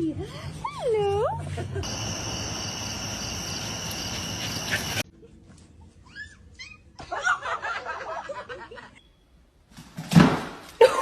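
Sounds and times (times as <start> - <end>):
loud noise with high whistling: 1.8 - 5.0.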